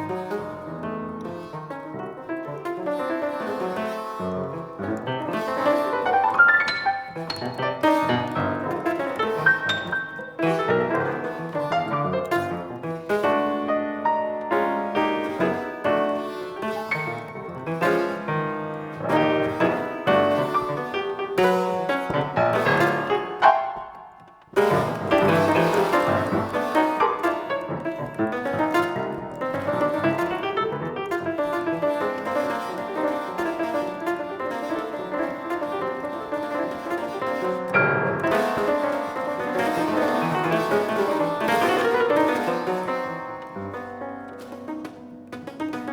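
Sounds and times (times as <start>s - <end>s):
fast piano playing: 0.0s - 45.9s.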